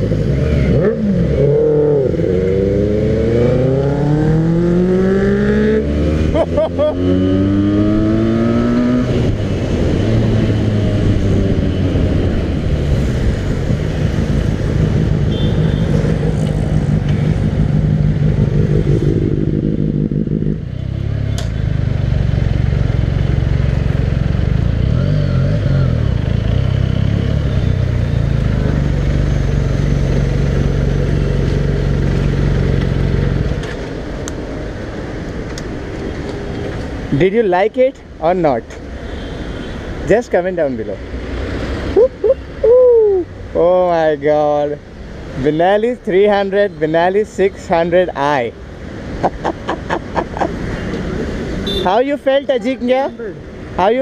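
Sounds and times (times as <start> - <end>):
motorcycle with loud exhaust: 0.0 - 33.7, 49.2 - 54.0.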